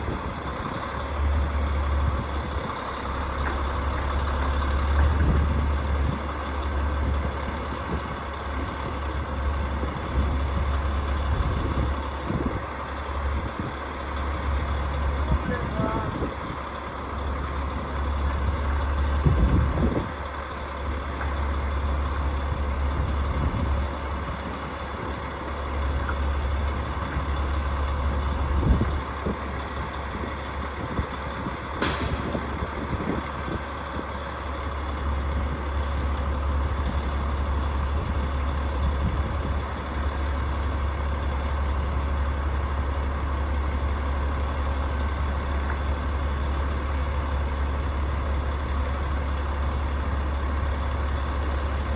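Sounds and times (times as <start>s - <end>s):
brief hiss: 31.8s - 32.5s.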